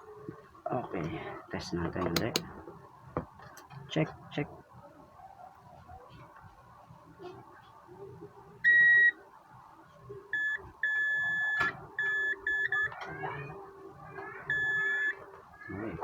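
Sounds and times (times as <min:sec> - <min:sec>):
multimeter continuity beeps: 0:08.6 - 0:09.2, 0:10.3 - 0:13.0, 0:14.5 - 0:15.2.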